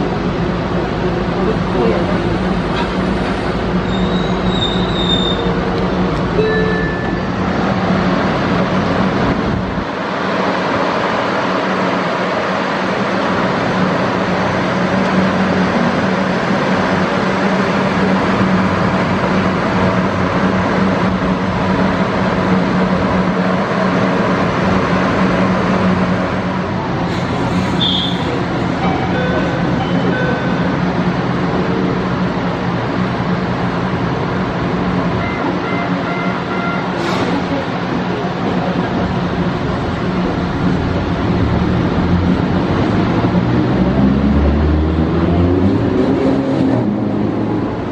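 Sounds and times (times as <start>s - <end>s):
high wheel squeals: 3.8s - 5.6s, 27.7s - 28.4s.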